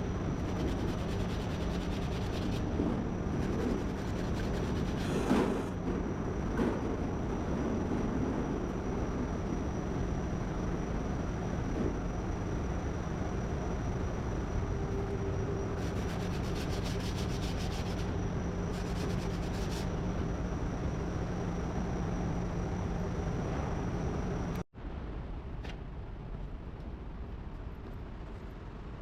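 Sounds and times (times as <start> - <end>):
machine hum: 0.0 - 24.6
sanding rubbing: 0.4 - 2.7, 3.4 - 5.7, 15.8 - 19.9.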